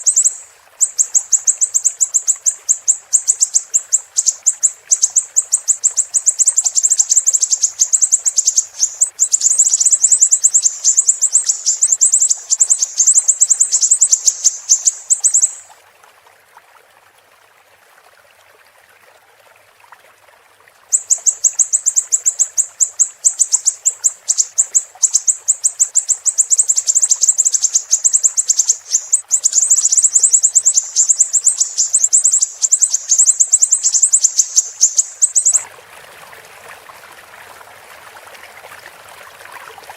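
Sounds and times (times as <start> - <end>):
songbird fast high chirps: 0.0 - 15.7, 20.9 - 35.7
faint running water: 0.0 - 39.9.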